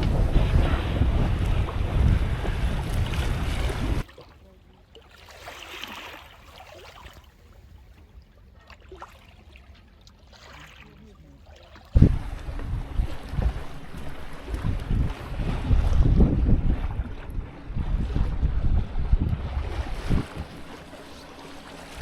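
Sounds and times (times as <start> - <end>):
wind buffeting microphone: 0.0 - 4.1, 11.9 - 22.0
sea noise: 0.0 - 22.0
water lapping and trickling: 0.0 - 22.0.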